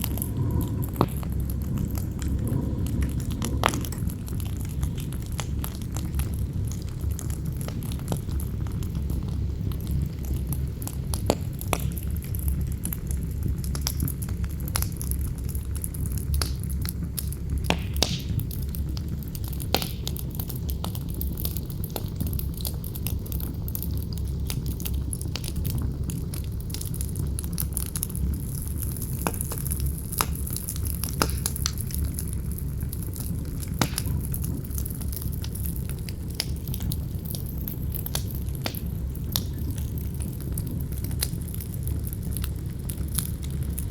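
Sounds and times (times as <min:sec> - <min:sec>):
wind blowing: 0:00.0 - 0:06.8
campfire crackling and popping: 0:00.0 - 0:43.9.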